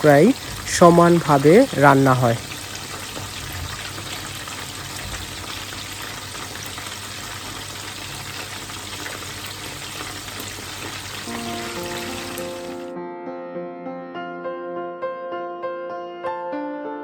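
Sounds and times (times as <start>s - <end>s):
chicken sizzling in hot oil: 0.0s - 12.9s.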